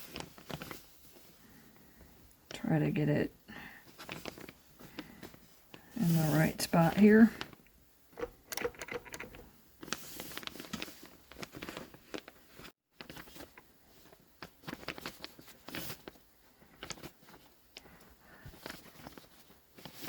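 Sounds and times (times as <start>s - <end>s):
fabric rustling: 0.0s - 1.7s, 8.2s - 20.0s
small clicks and taps: 7.6s - 9.5s.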